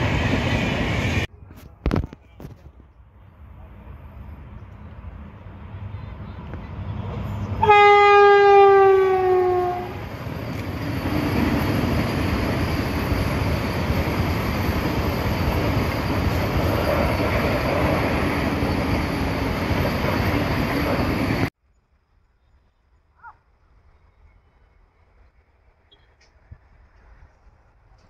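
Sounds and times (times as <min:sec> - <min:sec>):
train rumbling past: 0:00.0 - 0:01.3, 0:02.8 - 0:21.6
train horn: 0:07.6 - 0:10.1.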